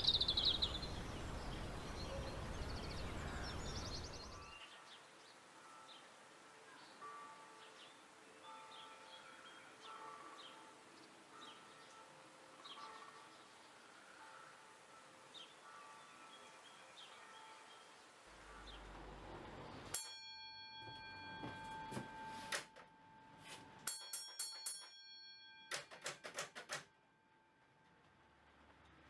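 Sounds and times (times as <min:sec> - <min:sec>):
faint bird chirps: 0:00.0 - 0:05.0
ringing metallic strikes: 0:23.7 - 0:26.0.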